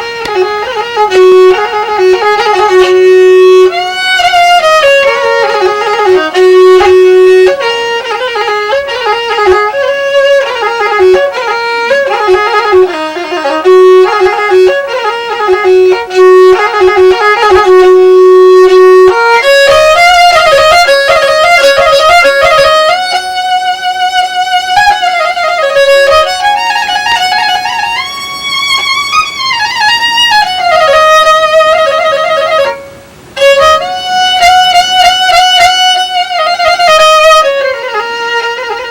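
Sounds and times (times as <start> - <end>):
violin melody with vibrato: 0.0 - 38.9.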